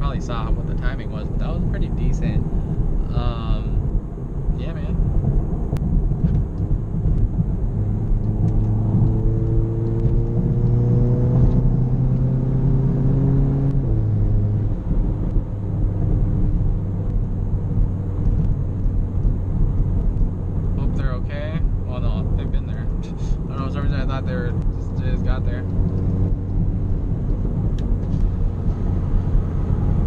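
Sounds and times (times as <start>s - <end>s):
car engine revving up: 0.0s - 30.0s.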